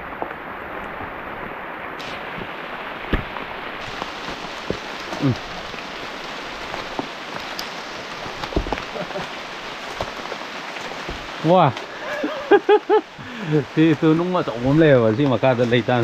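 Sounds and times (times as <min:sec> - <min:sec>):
rain falling: 0:00.0 - 0:16.0
footsteps on dry leaves and rocks: 0:00.8 - 0:12.2.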